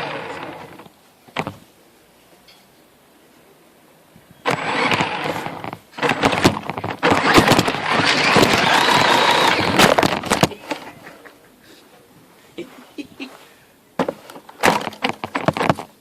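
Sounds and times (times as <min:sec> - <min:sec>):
electric motor whining: 0:00.0 - 0:00.9, 0:04.4 - 0:10.5
toy truck clattering over obstacles: 0:04.5 - 0:11.0, 0:14.0 - 0:16.0.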